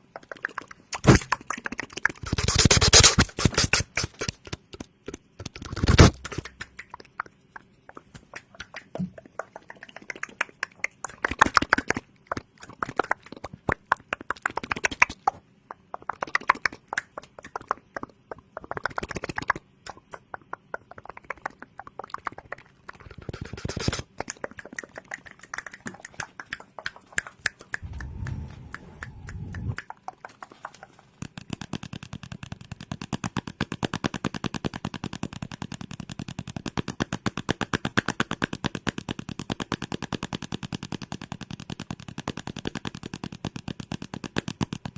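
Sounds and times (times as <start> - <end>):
crackly clicks and taps: 3.8 - 44.9
brief low sound: 27.8 - 29.8.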